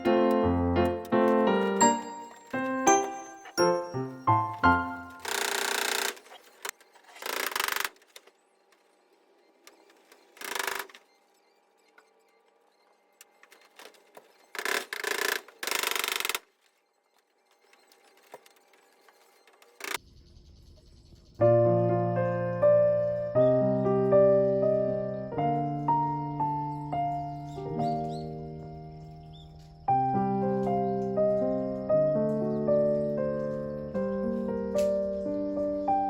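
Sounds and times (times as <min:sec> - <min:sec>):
piano background music: 0:00.0 - 0:05.6, 0:21.4 - 0:36.0.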